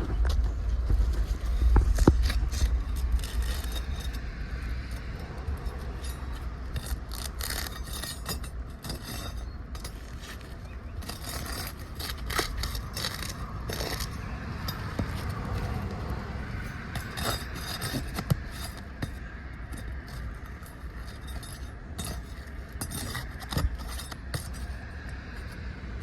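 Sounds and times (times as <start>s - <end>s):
low rumble: 0.0s - 9.9s
metal tool scraping roof shingles: 0.1s - 26.0s.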